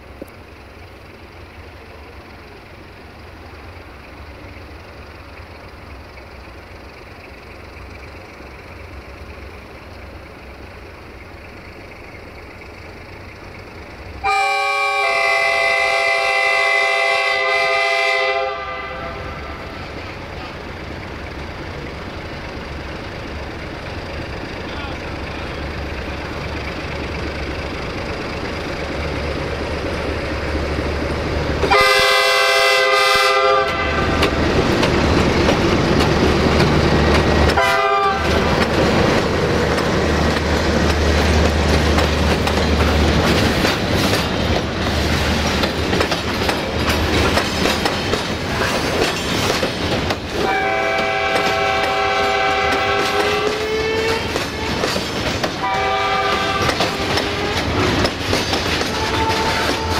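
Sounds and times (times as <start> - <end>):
locomotive engine rumble: 0.0 - 59.9
locomotive horn: 14.2 - 19.7, 31.6 - 34.3, 37.5 - 38.6, 50.4 - 55.0, 55.6 - 57.9, 58.8 - 59.9
wheels clicking over rail joints: 33.6 - 59.9.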